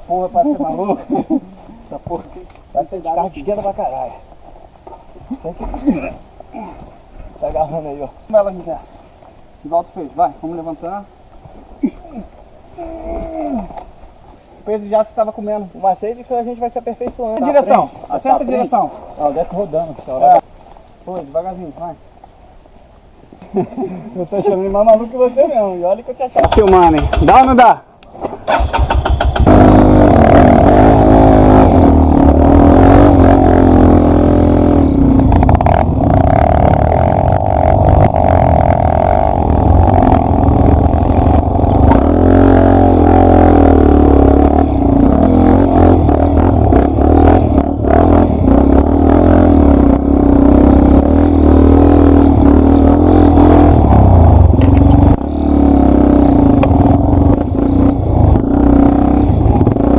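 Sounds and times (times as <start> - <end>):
knocks from rough ground: 26.4 - 29.5, 35.1 - 36.7
dirt bike engine revving: 28.5 - 59.9.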